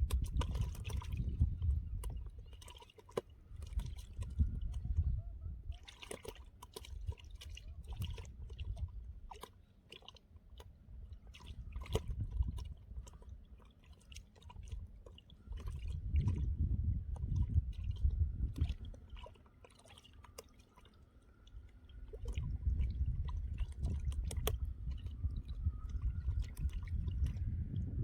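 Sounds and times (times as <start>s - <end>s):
water sloshing and splashing: 0.0s - 28.0s
low rumbling: 27.0s - 28.0s.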